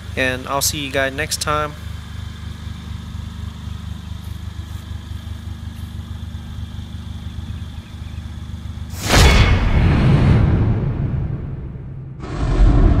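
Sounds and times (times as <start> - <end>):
car engine idling: 0.0 - 9.0
loud boom: 9.0 - 13.0.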